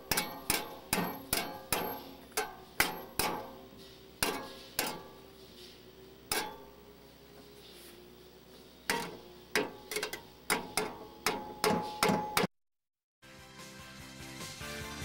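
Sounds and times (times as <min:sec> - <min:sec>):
sharp metallic knocks: 0:00.0 - 0:05.3, 0:06.3 - 0:06.8, 0:08.9 - 0:12.5.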